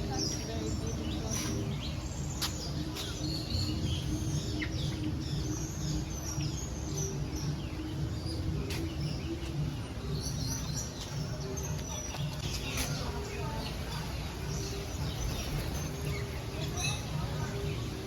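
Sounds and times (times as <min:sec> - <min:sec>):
birds chirping and calling: 0:00.0 - 0:18.0.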